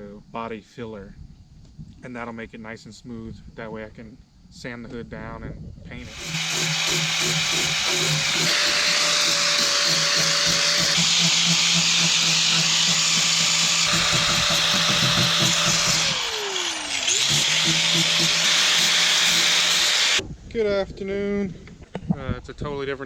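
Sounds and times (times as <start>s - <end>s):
angle grinder grinding: 6.0s - 20.2s.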